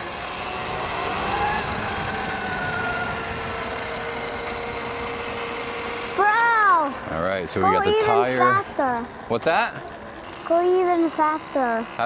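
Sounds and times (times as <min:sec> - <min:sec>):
wind and tyres rushing: 0:00.0 - 0:07.1
faint electric motor whine: 0:00.0 - 0:12.0.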